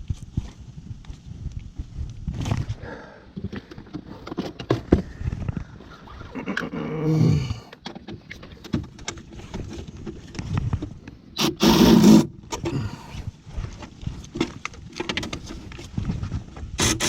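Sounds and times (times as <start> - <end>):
hand tools clicking and scraping: 11.4 - 13.2.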